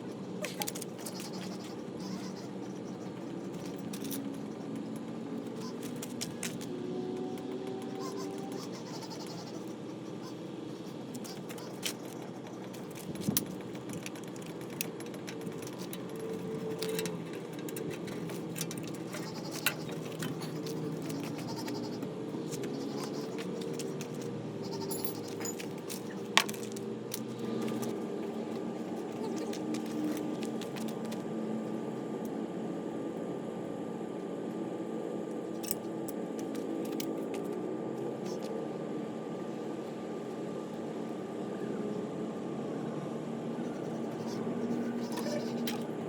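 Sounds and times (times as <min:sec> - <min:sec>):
steady low hum: 0:00.0 - 0:46.0
metal tools clinking: 0:24.8 - 0:26.8.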